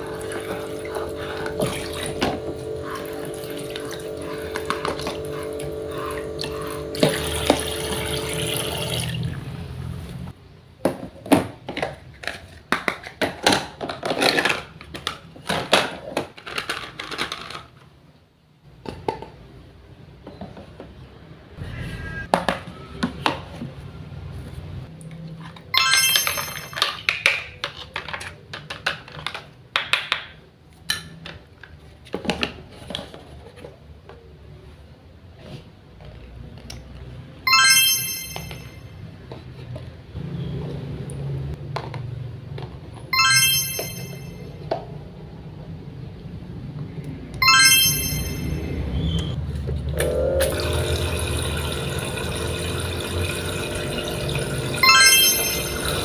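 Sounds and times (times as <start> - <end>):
toy water pump running: 0.0 - 9.4, 50.4 - 56.0
plastic toy clicks and clatters: 11.8 - 17.9, 26.2 - 30.3
short electronic tone: 21.6 - 23.0.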